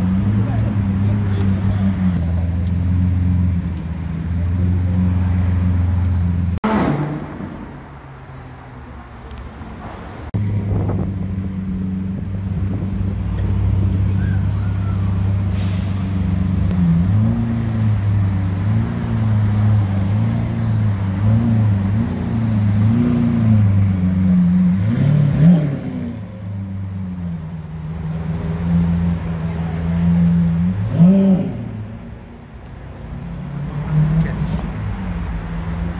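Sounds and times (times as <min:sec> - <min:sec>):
sports car engine revving: 0:16.4 - 0:26.6, 0:28.1 - 0:32.4.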